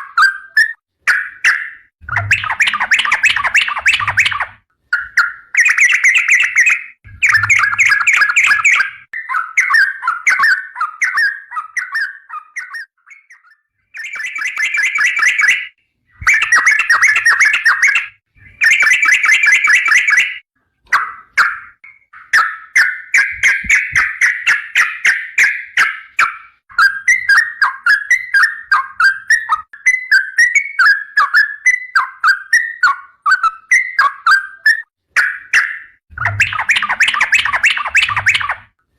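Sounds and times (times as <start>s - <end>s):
bulbul singing warbled phrases: 5.6s - 20.4s, 35.6s - 38.6s.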